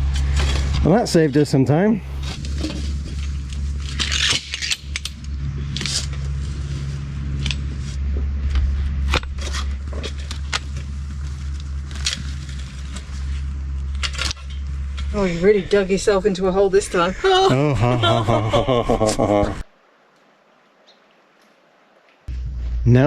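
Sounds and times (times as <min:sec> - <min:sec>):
metallic clanks and scrapes: 0:00.0 - 0:15.6.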